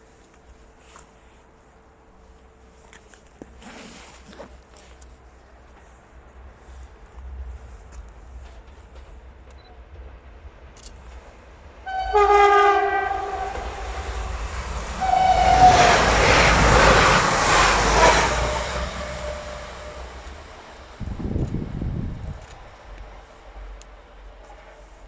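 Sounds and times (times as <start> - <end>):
wheel and rail noise: 0.0 - 25.0
train horn: 11.8 - 20.3.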